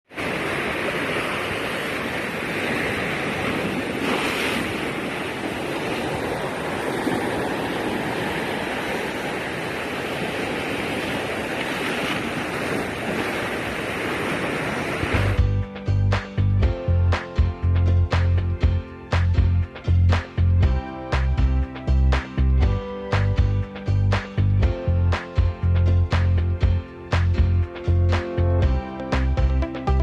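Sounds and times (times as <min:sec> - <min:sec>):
sea surf washing ashore: 0:00.0 - 0:15.5
wind on microphone: 0:00.2 - 0:15.4.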